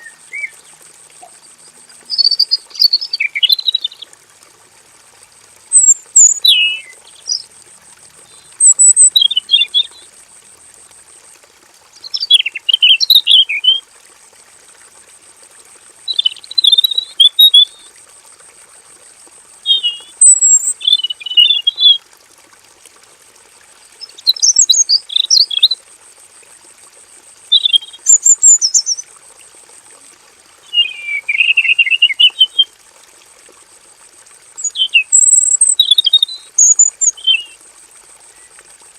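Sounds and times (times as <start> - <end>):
bird singing warbled phrases: 2.0 - 4.1, 5.7 - 7.5, 8.3 - 10.0, 12.0 - 13.8, 16.1 - 17.8, 19.6 - 22.0, 24.0 - 25.8, 27.5 - 29.0, 30.7 - 32.7, 34.6 - 37.6.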